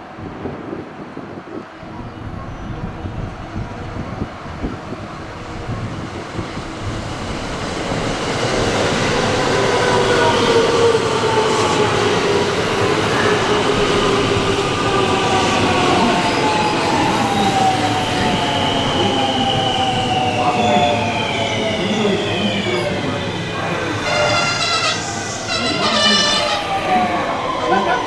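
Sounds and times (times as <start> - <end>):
electric train braking: 12.9 - 28.0.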